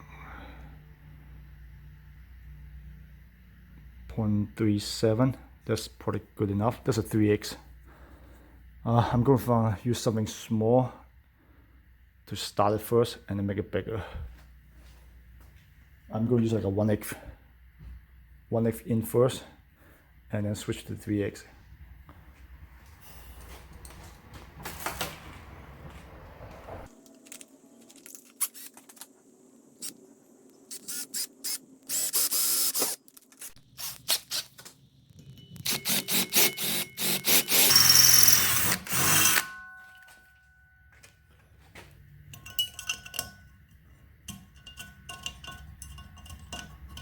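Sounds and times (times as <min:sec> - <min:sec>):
power drill boring through metal: 0:30.7 - 0:33.0, 0:35.6 - 0:39.7.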